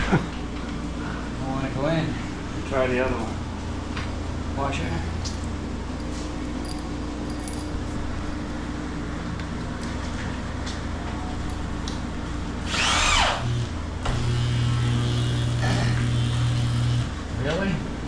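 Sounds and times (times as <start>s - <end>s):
power drill running: 12.6s - 17.1s.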